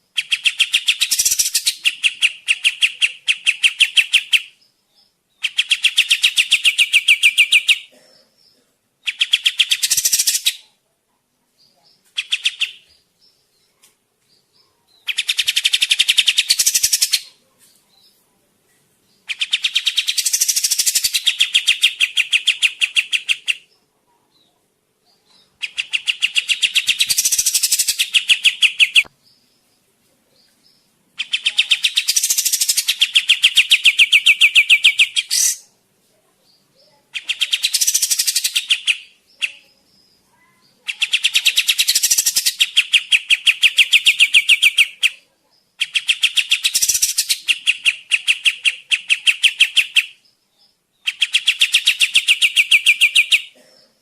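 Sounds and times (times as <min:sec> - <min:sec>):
bird singing quick repeated notes: 0:31.2 - 0:35.7.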